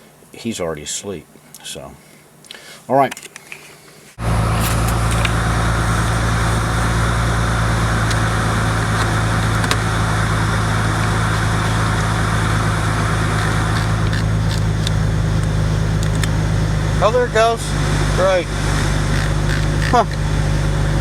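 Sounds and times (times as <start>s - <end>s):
car engine idling: 4.2s - 21.0s.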